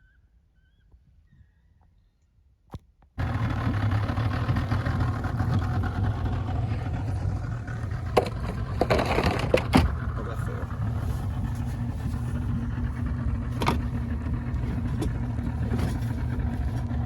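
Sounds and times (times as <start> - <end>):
engine running with low hum: 3.2 - 17.0.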